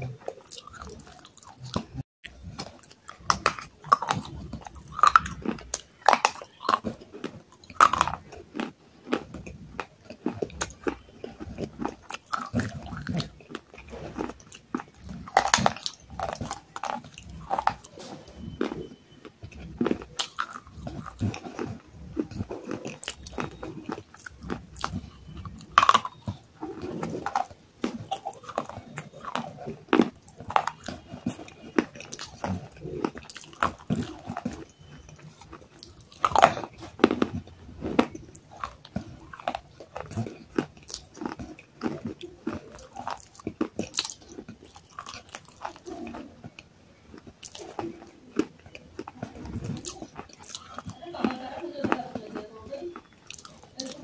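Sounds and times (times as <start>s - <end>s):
biting and chewing crunches: 0.0s - 54.0s.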